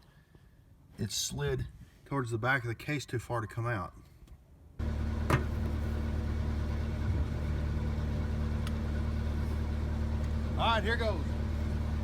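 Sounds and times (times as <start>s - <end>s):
engine idling: 4.8s - 12.0s.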